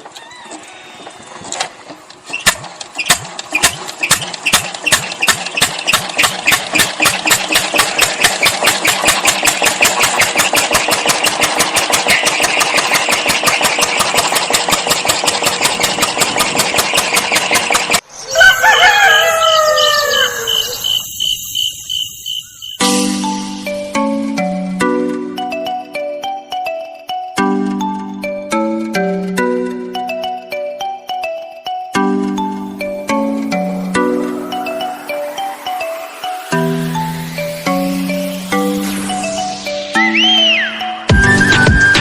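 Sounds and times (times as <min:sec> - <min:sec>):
rooster crowing: 0:00.0 - 0:01.4, 0:18.1 - 0:21.4
small engine running: 0:02.4 - 0:18.0.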